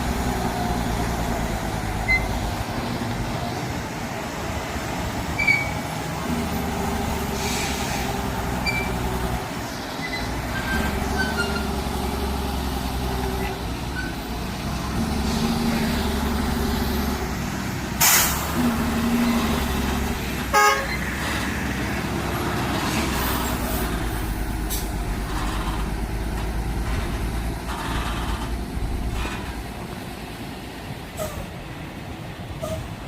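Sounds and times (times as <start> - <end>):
diesel truck engine running: 0.0 - 33.0
air hiss burst: 7.3 - 8.2, 18.0 - 18.5.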